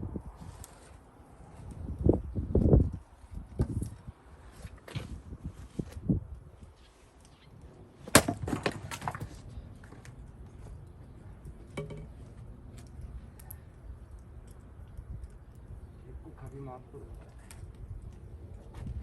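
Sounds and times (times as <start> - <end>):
axe striking log: 8.0 - 9.3
wood cracking and splintering: 8.0 - 10.2.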